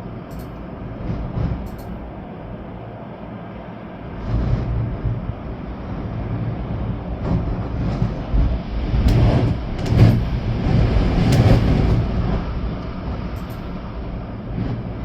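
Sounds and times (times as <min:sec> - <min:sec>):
rain: 0:00.0 - 0:15.0
storm wind gusting: 0:00.0 - 0:15.0
wind buffeting the microphone: 0:03.9 - 0:15.0.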